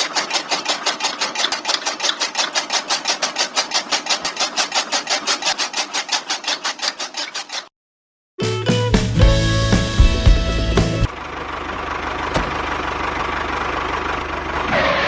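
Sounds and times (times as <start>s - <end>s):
chaff cutter scraping clatter: 0.0s - 7.7s.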